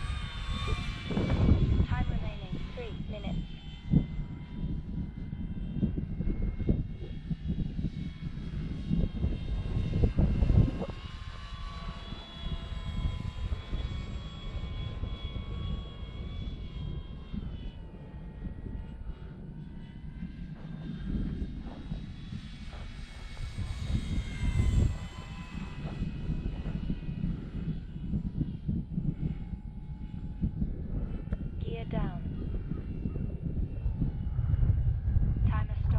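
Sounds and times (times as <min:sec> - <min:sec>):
model plane motor whining: 0:00.0 - 0:35.0
wind rumbling on microphone: 0:00.0 - 0:35.9.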